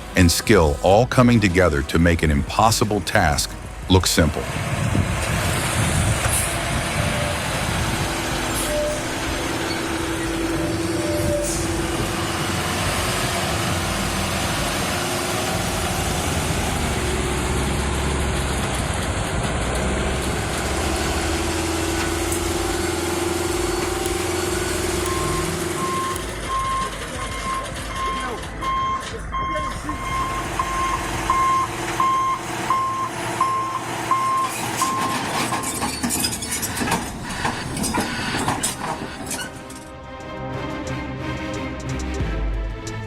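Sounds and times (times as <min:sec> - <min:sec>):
heavy truck engine running: 0:00.0 - 0:42.8
reversing alarm beeping: 0:06.4 - 0:13.1, 0:23.6 - 0:36.4.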